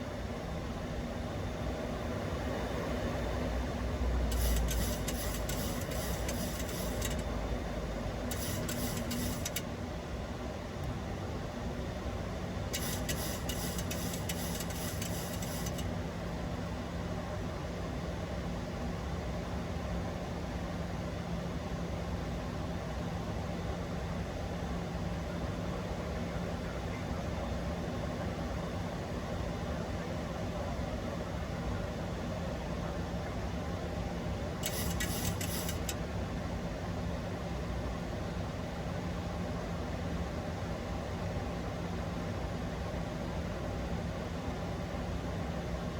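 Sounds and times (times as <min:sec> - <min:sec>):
aircraft engine drone: 0:00.0 - 0:09.6
airflow and engine drone: 0:00.0 - 0:45.9.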